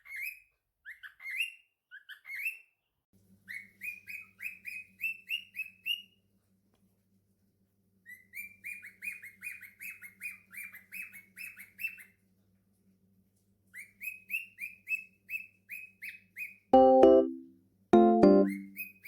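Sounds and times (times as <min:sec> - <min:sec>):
cockatiel chirping: 0:00.0 - 0:02.7, 0:08.1 - 0:12.1, 0:18.4 - 0:19.0.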